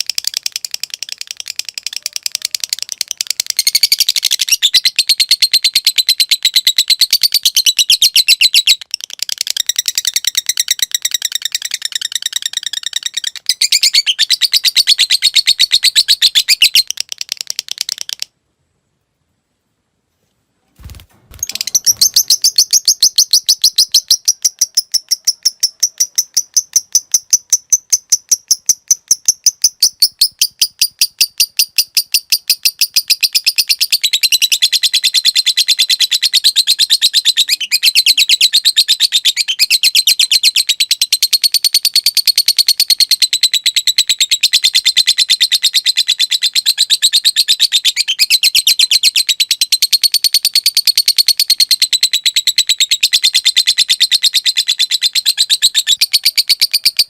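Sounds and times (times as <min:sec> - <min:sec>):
lovebird shrill chatter: 0:21.3 - 0:57.0.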